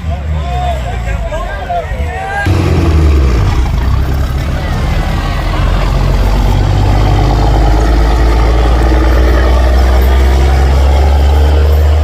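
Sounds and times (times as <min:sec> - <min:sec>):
loud truck engine droning: 0:00.0 - 0:12.0.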